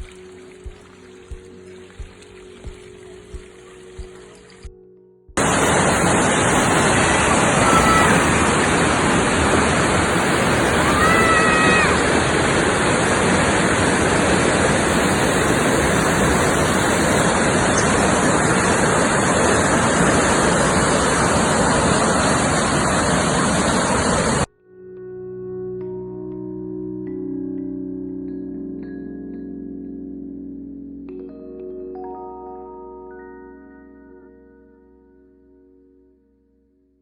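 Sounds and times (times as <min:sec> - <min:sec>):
waterfall rushing: 0:05.4 - 0:24.5
faint whistle-like tones: 0:10.1 - 0:11.6.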